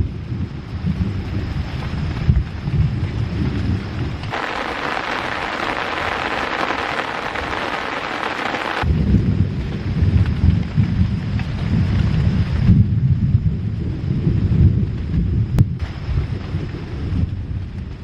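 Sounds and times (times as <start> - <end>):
heavy rain hissing: 4.3 - 9.1.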